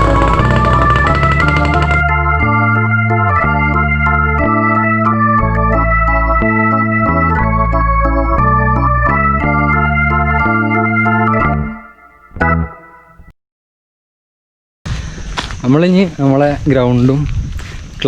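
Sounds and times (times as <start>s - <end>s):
organ-like keyboard chords: 0.0s - 13.3s.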